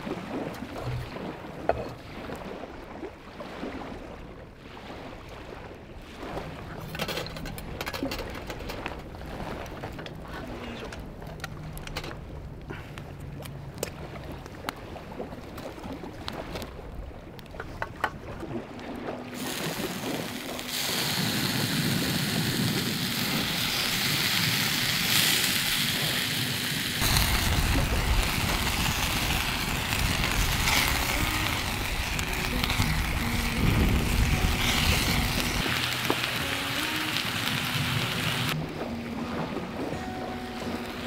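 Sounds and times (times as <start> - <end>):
low wind rumble: 0.0 - 41.0
food sizzling in a skillet: 19.4 - 38.6.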